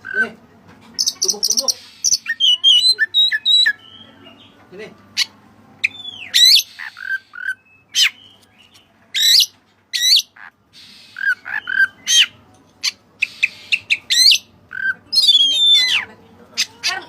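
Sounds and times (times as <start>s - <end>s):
bird singing whistled notes: 1.0s - 4.2s, 5.8s - 10.2s.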